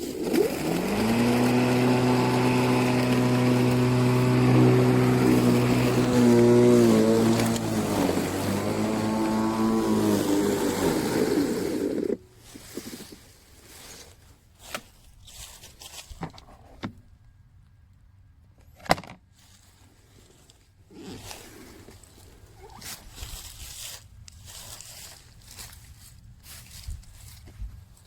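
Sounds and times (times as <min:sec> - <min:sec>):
electric mower motor running: 0:00.1 - 0:12.2.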